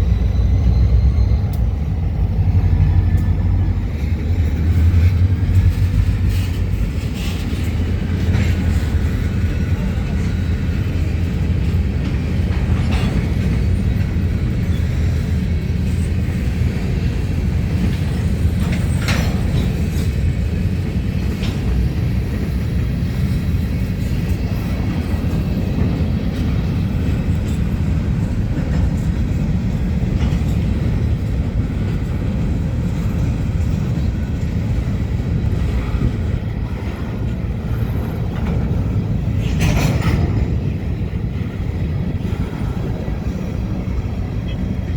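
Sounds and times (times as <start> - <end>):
locomotive engine rumble: 0.0 - 44.9.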